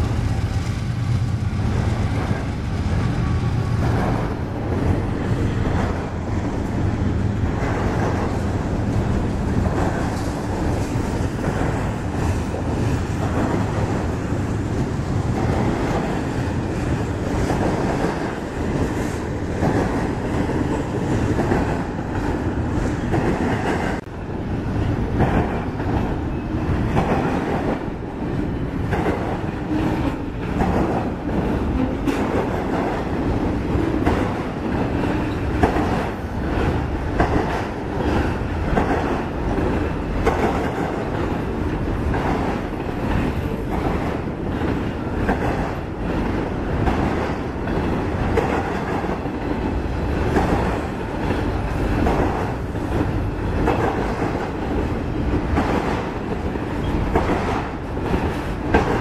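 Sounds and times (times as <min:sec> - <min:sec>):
freight train rolling on rails: 0:00.0 - 0:59.0
wheels clicking over rail joints: 0:24.7 - 0:59.0.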